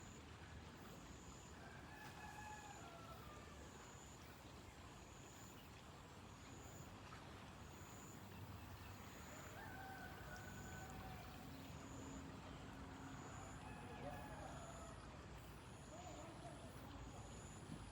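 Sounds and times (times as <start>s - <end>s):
rooster crowing: 9.5s - 11.3s.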